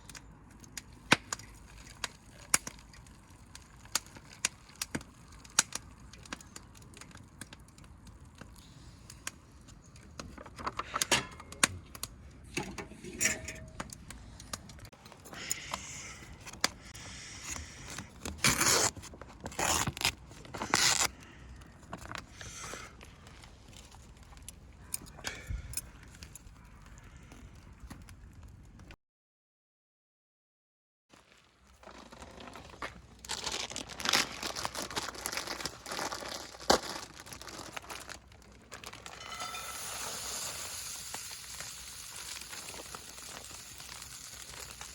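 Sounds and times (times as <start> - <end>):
objects clinking and knocking: 12.5 - 14.0, 38.9 - 40.6
scraping or rustling: 38.8 - 40.6.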